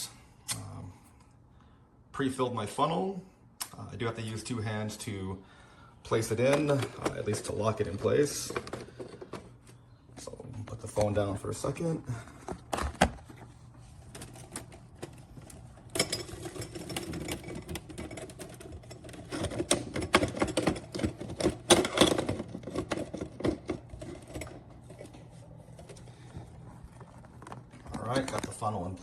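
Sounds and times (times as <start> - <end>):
portafilter clicking and rattling: 6.1 - 29.0.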